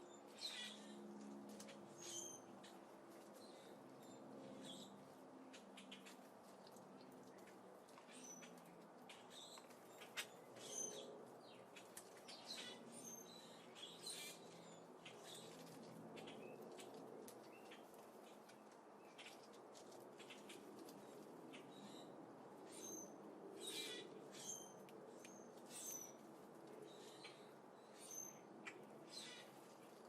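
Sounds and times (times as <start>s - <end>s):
small birds chirping: 1.6s - 30.0s.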